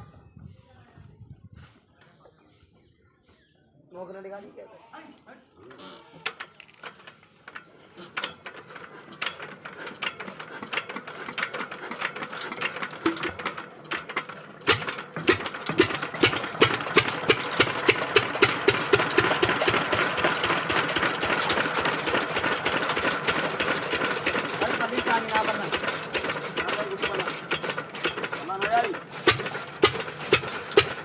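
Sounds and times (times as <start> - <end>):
engine driving chaff cutter: 6.4 - 31.0.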